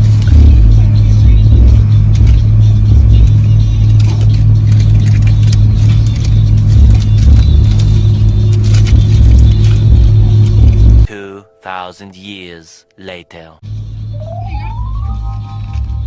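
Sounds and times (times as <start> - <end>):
deep bass thumps from stereo: 0.0 - 3.4, 8.9 - 11.1
car interior rumble: 0.0 - 11.1.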